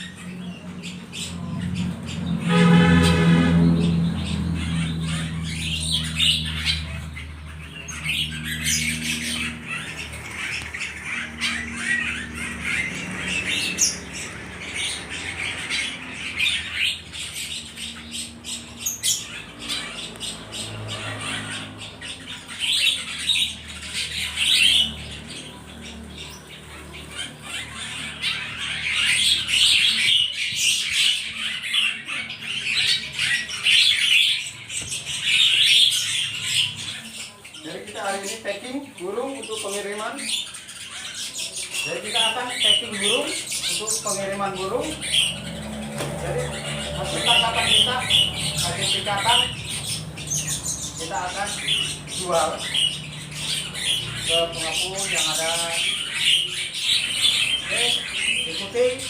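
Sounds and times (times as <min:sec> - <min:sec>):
songbirds chirping and squawking: 0:00.0 - 0:59.0.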